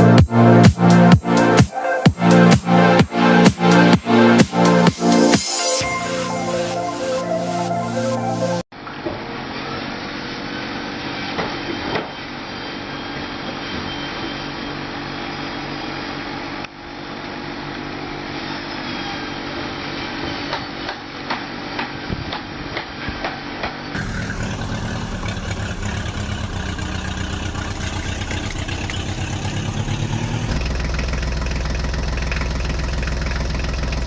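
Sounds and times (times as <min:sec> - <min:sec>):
small motor running: 0:24.0 - 0:31.0.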